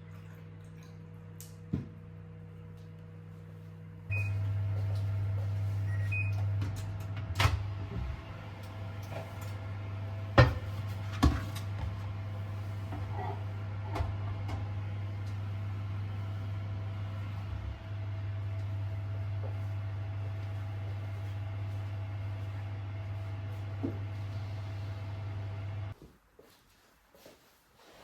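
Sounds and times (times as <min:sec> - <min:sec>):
microwave oven humming: 0:00.0 - 0:26.0
microwave beeps: 0:04.1 - 0:04.8, 0:05.7 - 0:06.6.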